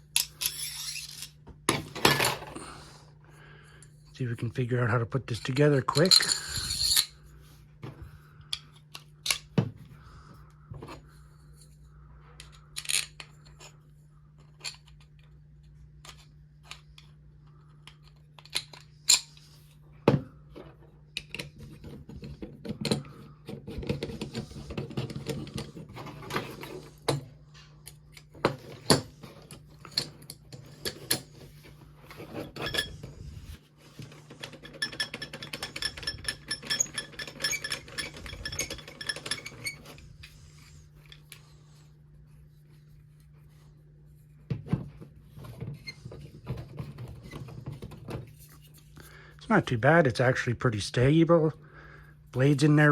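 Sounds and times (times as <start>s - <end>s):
faint steady hum: 0.0s - 52.9s
metal parts clicking: 34.1s - 40.4s.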